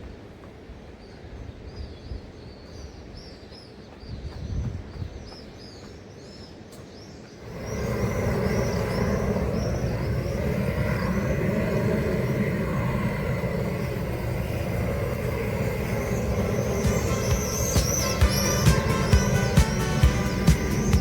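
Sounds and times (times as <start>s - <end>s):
small birds chirping: 0.0s - 21.0s
loud steady rumbling: 7.4s - 21.0s.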